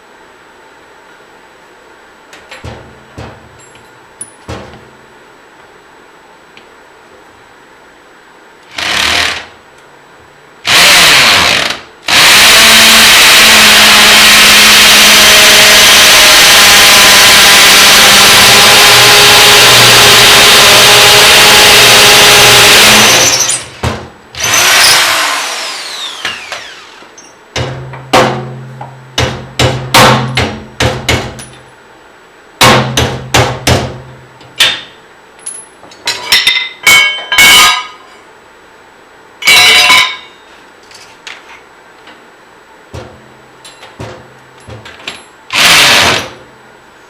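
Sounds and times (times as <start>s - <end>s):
tool knocking on metal: 2.6s - 3.6s
power drill running: 8.7s - 9.5s, 10.7s - 23.7s, 24.4s - 27.1s, 45.5s - 46.4s
low steady hum: 25.4s - 45.5s.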